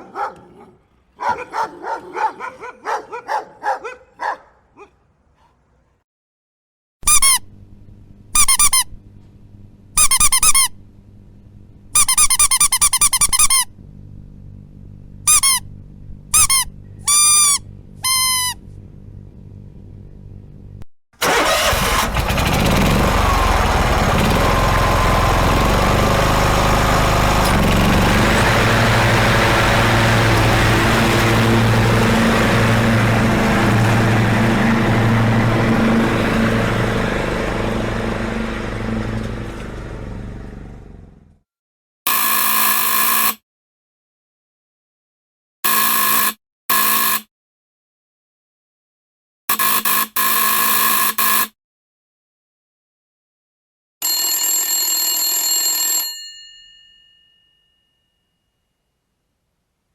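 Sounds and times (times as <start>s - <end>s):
vehicle engine running: 0.0s - 3.4s, 7.3s - 41.4s
dog yelping and whining: 0.0s - 4.9s.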